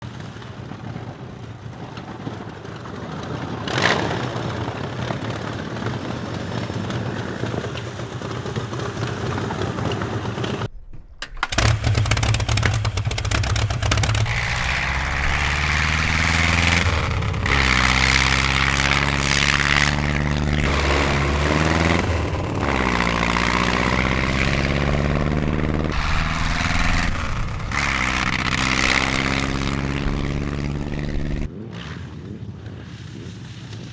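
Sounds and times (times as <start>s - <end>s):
low rough noise: 10.7s - 31.6s
car engine revving: 11.5s - 31.5s.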